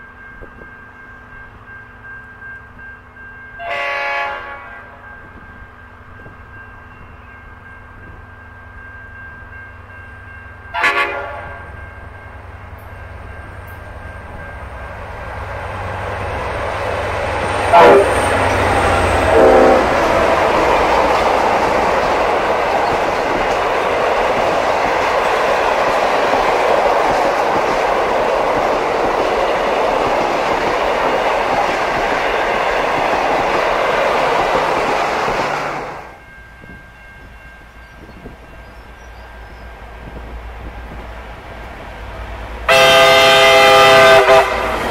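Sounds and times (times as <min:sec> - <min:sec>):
train horn blasts: 0:03.6 - 0:05.0, 0:10.7 - 0:11.8, 0:17.6 - 0:21.2, 0:42.6 - 0:44.9.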